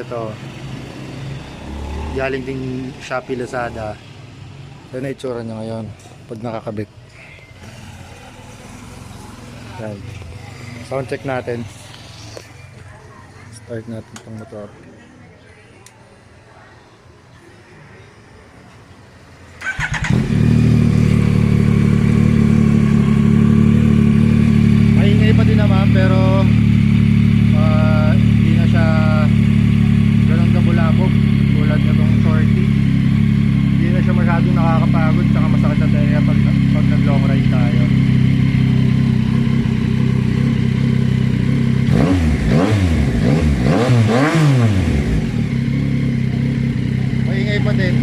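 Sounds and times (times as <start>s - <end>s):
motorcycle engine starting and idling: 7.6s - 12.9s, 19.5s - 48.0s.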